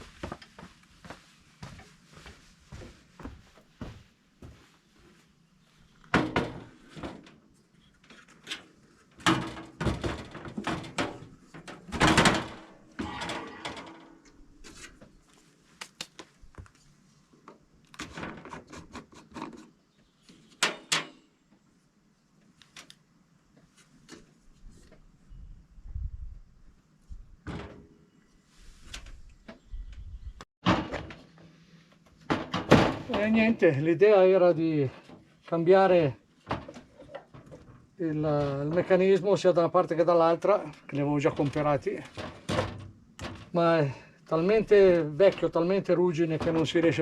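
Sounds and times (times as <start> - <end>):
objects clattering: 41.3 - 43.6.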